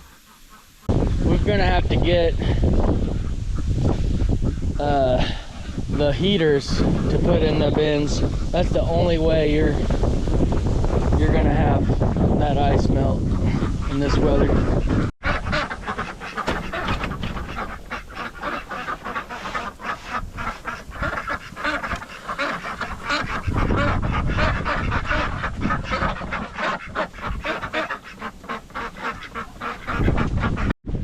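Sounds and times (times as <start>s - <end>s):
wind on microphone: 0.9s - 27.9s, 29.0s - 31.0s
poultry calling: 11.3s - 30.7s.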